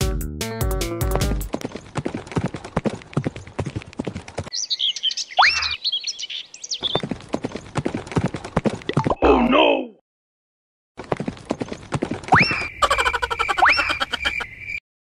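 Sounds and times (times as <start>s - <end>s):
music: 0.0s - 1.5s
high chirping calls: 4.5s - 7.1s, 12.3s - 14.8s.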